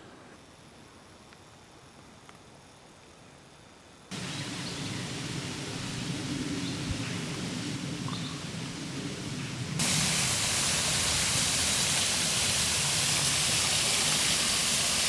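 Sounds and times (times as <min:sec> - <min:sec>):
faint outdoor ambience: 0:00.0 - 0:15.0
waterfall rushing: 0:04.1 - 0:15.0.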